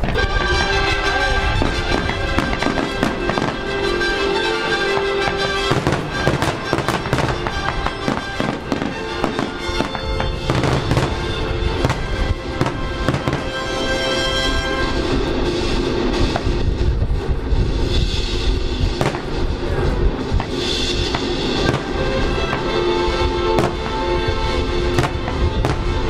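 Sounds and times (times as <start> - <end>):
fireworks bangs and crackling: 0.0 - 26.0
music with long held notes: 0.0 - 26.0.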